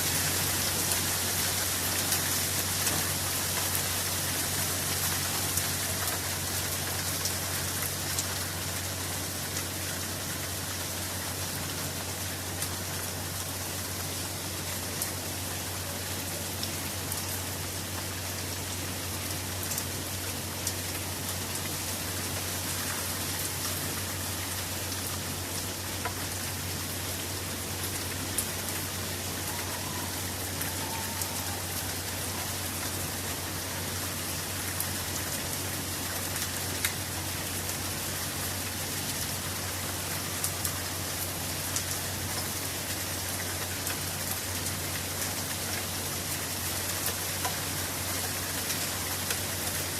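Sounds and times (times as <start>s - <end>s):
steady rain falling: 0.0s - 49.9s
raindrops clicking close by: 0.1s - 49.9s.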